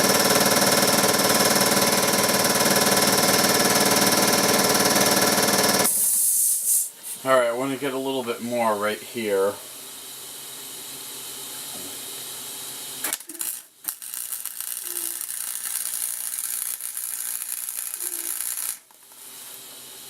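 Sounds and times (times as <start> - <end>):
welder crackling: 13.0 - 19.6.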